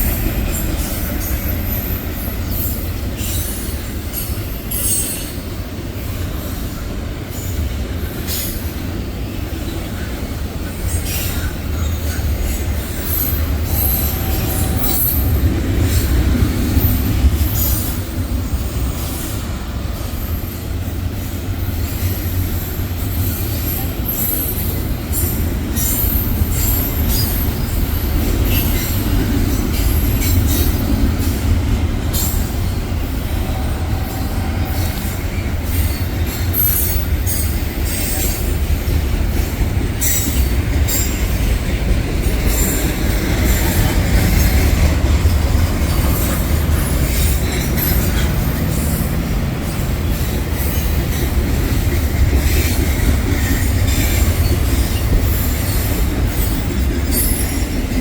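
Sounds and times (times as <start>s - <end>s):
railroad cars rumbling past: 0.0s - 58.0s
train wheels clicking: 0.0s - 58.0s.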